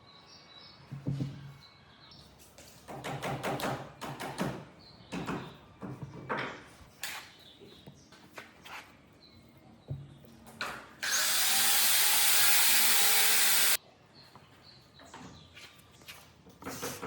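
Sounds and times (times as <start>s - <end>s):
wood and tools knocking and scraping: 0.9s - 1.6s, 2.4s - 9.0s, 9.8s - 11.0s, 15.0s - 17.0s.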